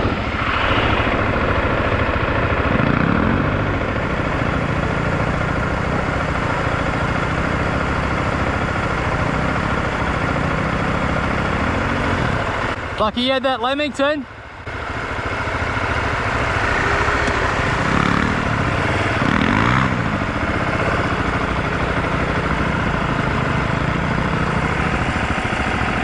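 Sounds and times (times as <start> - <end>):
wind rush: 0.0 - 2.8
motorcycle engine revving: 0.0 - 13.0, 14.3 - 26.0.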